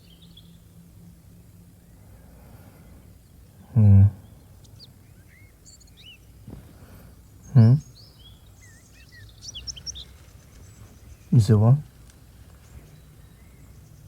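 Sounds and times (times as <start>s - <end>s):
birds chirping softly: 0.0s - 14.0s
man humming: 3.6s - 4.2s.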